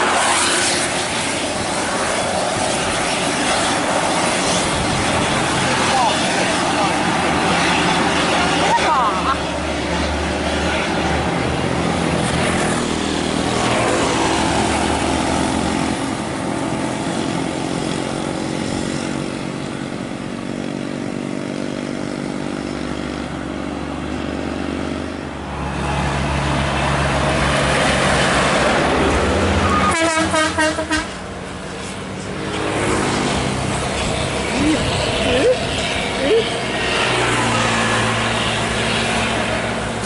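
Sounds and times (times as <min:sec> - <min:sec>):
heavy vehicles passing: 0:00.0 - 0:40.0
multi-tone vehicle horn warbling: 0:29.6 - 0:31.2.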